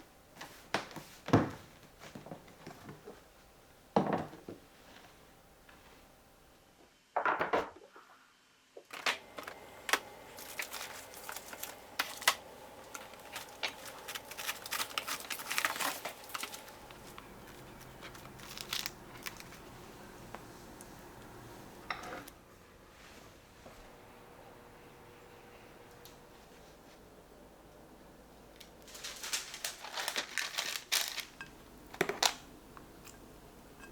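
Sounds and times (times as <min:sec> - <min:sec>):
plastic packaging crinkling: 0:08.9 - 0:20.8, 0:28.6 - 0:32.5.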